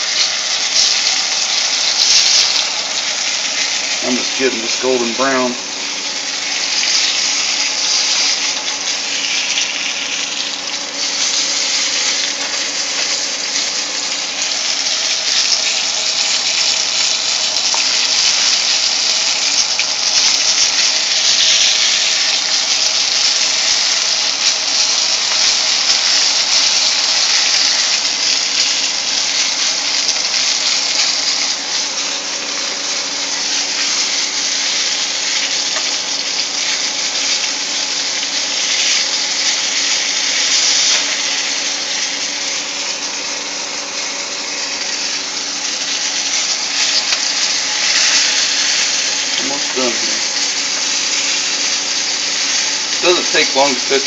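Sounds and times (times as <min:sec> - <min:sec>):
meat frying in oil sizzling: 0:00.0 - 0:54.0.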